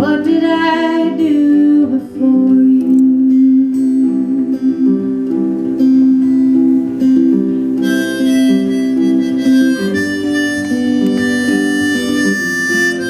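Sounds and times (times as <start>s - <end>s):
acoustic guitar: 0.0s - 13.0s
harmonica playing: 7.8s - 13.0s.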